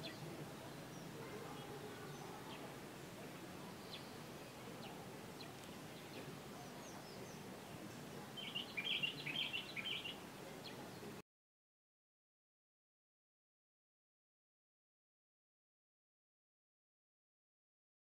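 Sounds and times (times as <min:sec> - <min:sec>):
faint background hiss: 0:00.0 - 0:11.2
bird chirps: 0:03.7 - 0:11.0.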